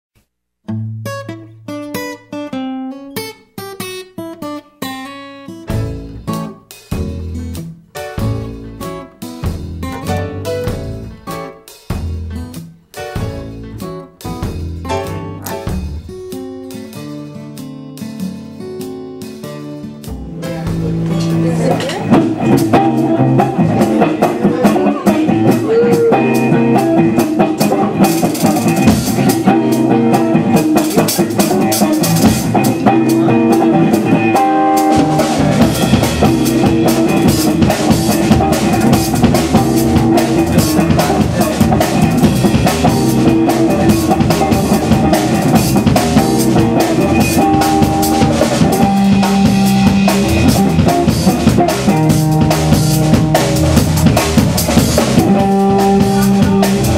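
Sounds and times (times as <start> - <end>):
blues guitar: 0.6 - 56.9
bass guitar: 5.6 - 56.9
drum kit beat: 5.6 - 56.9.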